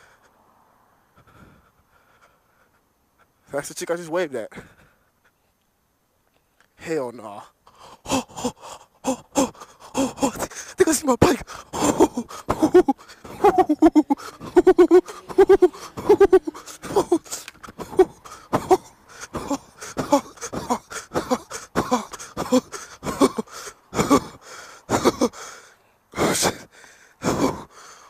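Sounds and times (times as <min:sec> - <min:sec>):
man panting hard: 0:01.2 - 0:03.5, 0:04.5 - 0:05.2, 0:07.7 - 0:28.0
man groaning: 0:08.0 - 0:25.4, 0:26.2 - 0:27.7.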